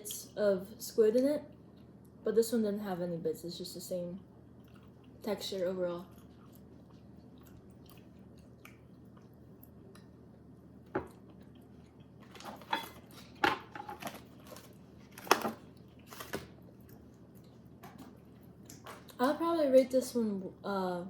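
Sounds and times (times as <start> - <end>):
chewing: 4.4 - 10.4, 11.0 - 13.4, 14.1 - 19.2.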